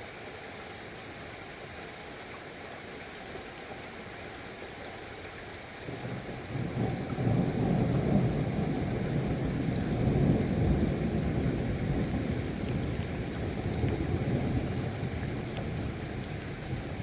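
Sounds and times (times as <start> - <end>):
steady rain hiss: 5.8 - 17.0.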